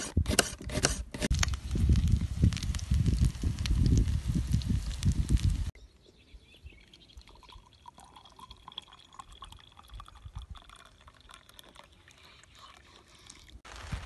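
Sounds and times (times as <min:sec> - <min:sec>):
tea trickling into mug: 0:06.8 - 0:13.6.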